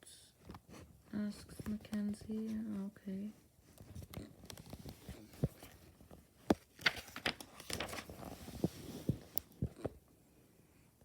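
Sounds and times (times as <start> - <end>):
paper pages rustling: 3.6 - 10.0.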